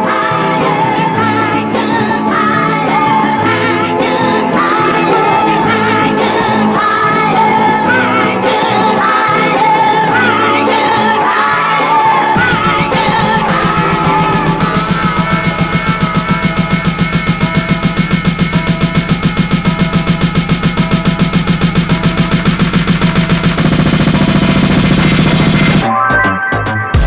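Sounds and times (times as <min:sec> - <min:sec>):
music with singing: 0:00.0 - 0:27.0
fast pulsing beat: 0:12.4 - 0:25.8.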